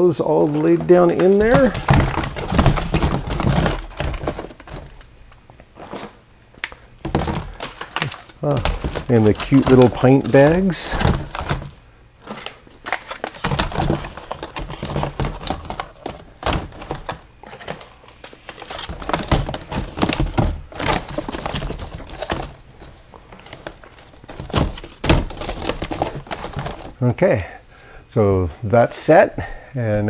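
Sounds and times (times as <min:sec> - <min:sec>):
plastic bags crinkling: 0:00.0 - 0:05.1, 0:05.8 - 0:27.0
thumps into plastic bin: 0:00.5 - 0:04.9, 0:07.0 - 0:11.8, 0:24.3 - 0:27.0.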